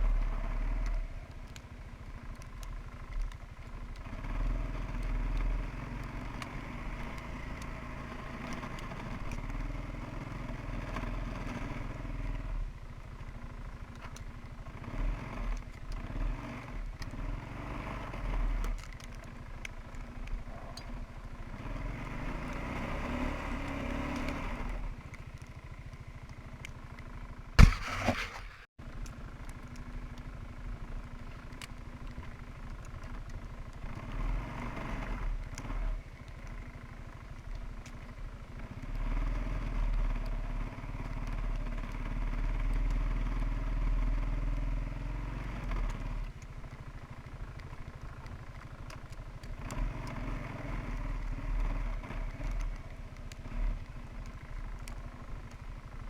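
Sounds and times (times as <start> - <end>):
atv engine under load: 0.0 - 56.0
sharp thump: 27.6 - 28.7.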